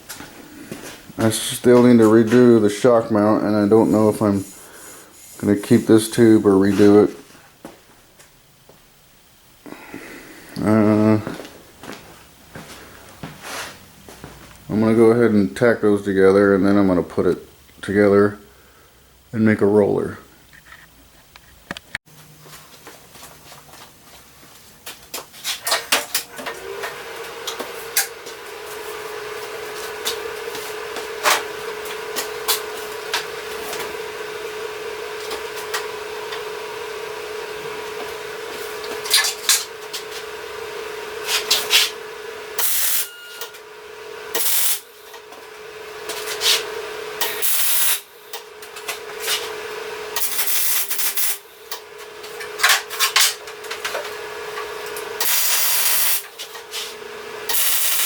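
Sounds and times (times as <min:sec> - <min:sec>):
power tool grinding metal: 0:01.4 - 0:07.1, 0:26.3 - 0:58.0.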